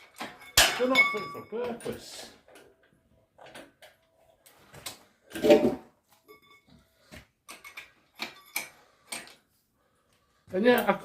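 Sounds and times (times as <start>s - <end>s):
faint metallic ringing: 6.2s - 9.0s
metal clanks and clicks: 7.4s - 9.4s.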